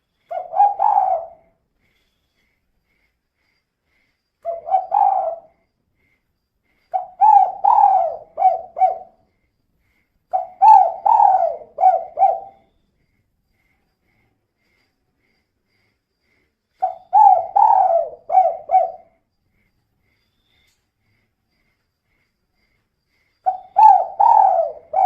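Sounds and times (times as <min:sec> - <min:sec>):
dove cooing: 0:00.3 - 0:01.5, 0:04.4 - 0:05.6, 0:06.9 - 0:09.2, 0:10.3 - 0:12.6, 0:16.8 - 0:19.2, 0:23.4 - 0:25.0.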